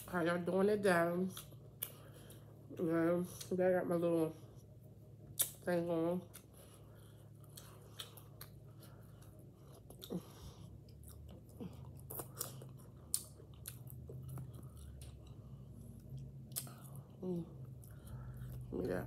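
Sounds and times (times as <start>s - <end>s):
person chewing: 6.2s - 18.7s.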